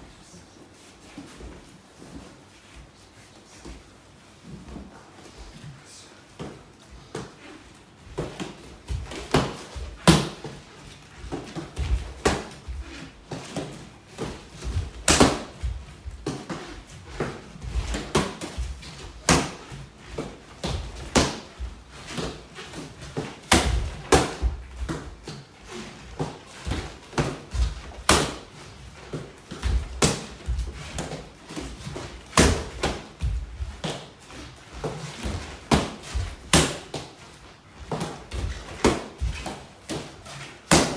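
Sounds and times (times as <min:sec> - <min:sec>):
punches and kicks hitting a mitt: 0:08.2 - 0:10.7, 0:11.3 - 0:25.4, 0:26.2 - 0:34.1, 0:34.8 - 0:37.2, 0:40.7 - 0:40.9.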